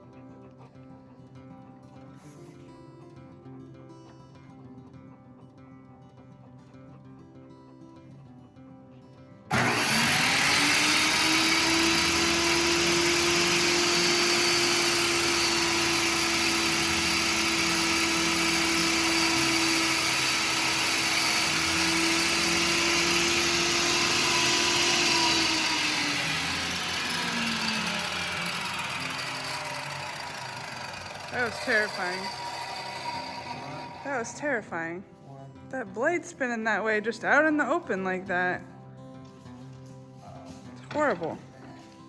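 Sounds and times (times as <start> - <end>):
circular saw cutting: 9.5 - 34.7.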